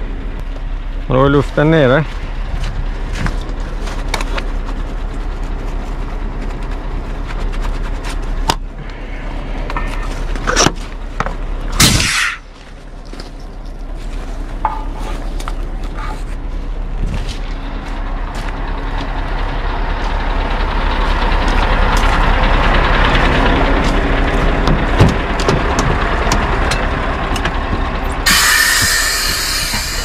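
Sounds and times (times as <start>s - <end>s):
diesel truck engine running: 0.0s - 30.0s
air hiss: 28.3s - 30.0s
sudden loud hiss: 28.3s - 30.0s.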